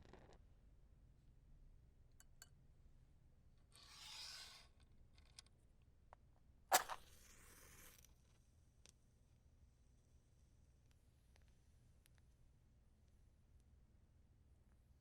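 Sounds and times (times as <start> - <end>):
match striking and hissing: 6.7 - 8.1.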